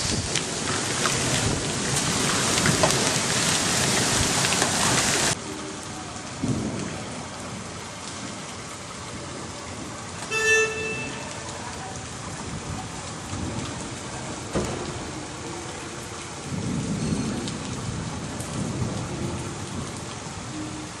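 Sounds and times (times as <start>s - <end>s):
rain and hail pattering: 0.0s - 21.0s
low rumble of thunder: 6.3s - 10.2s, 11.9s - 21.0s.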